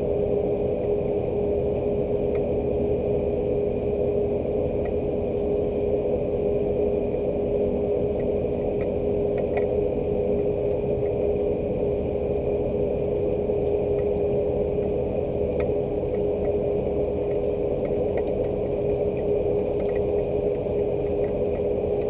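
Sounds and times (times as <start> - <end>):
low mechanical hum: 0.0 - 22.0
rain drops ticking: 17.2 - 22.0.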